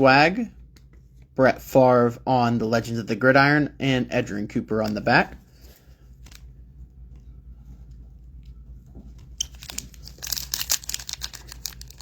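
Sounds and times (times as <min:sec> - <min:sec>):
faint low hum: 0:00.0 - 0:12.0
foil wrapper tearing and crinkling: 0:09.4 - 0:12.0.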